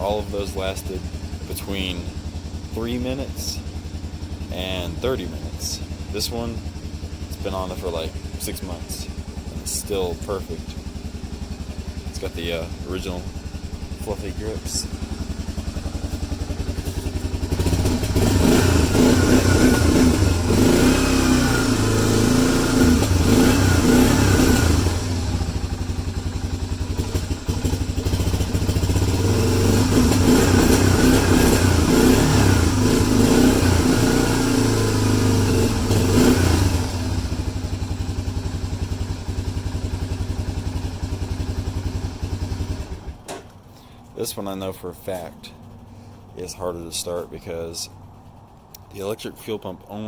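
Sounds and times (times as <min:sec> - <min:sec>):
quad bike engine revving and idling: 0:00.0 - 0:50.0.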